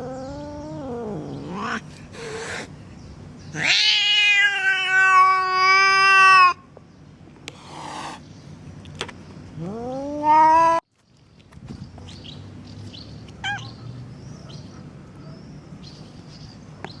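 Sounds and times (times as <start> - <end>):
kitten meowing angrily: 0.3 - 2.7, 3.5 - 6.6.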